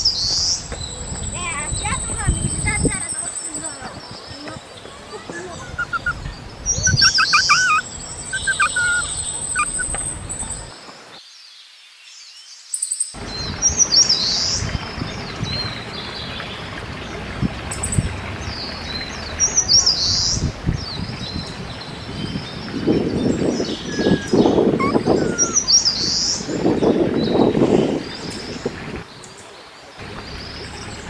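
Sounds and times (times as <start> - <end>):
outdoor background noise: 0.0 - 31.0
wild birds chirping: 0.0 - 31.0
bird trill: 5.3 - 10.7, 23.3 - 26.5.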